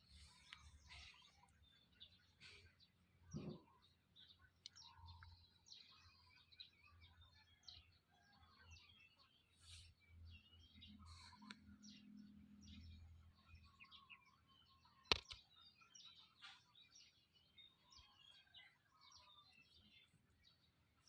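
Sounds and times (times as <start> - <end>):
faint birds chirping: 0.0 - 21.0
sharp click: 15.1 - 15.4.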